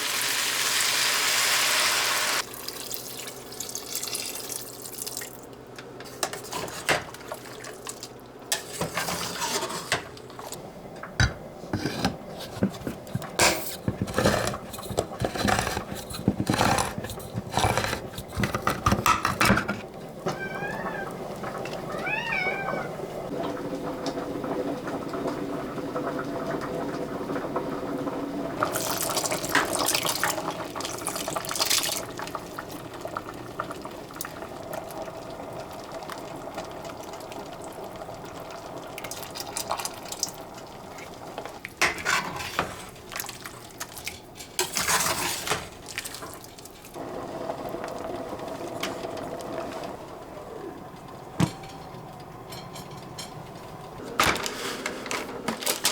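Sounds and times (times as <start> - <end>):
liquid pouring and splashing: 2.4 - 5.5, 28.6 - 41.8, 42.6 - 47.0
dishes clinking: 51.4 - 55.9.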